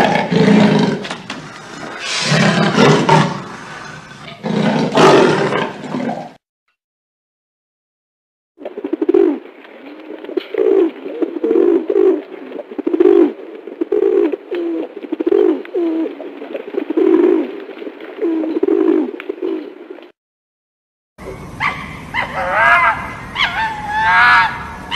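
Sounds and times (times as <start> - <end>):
pigeon cooing: 8.6 - 16.2, 18.2 - 19.7.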